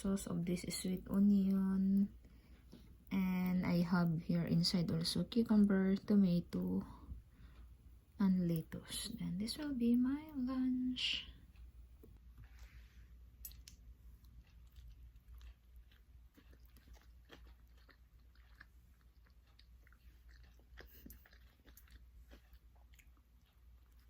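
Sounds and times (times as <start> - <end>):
low steady hum: 0.0 - 24.0
chewing a sandwich: 12.1 - 24.0.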